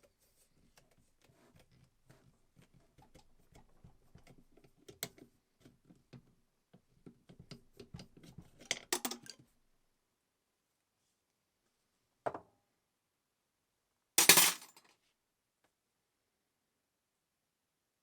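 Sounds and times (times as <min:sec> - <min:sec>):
metal tools clicking and tapping: 0:08.7 - 0:09.4.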